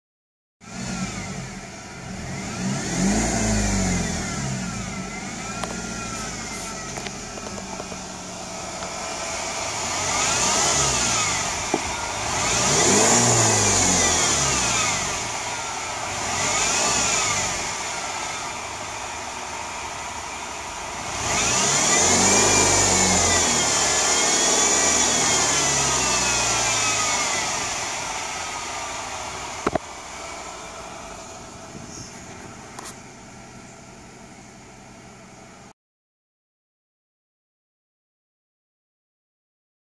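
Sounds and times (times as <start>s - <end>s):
car engine idling and revving: 0.6s - 35.8s
belt drive whine: 4.2s - 19.6s, 20.3s - 32.9s.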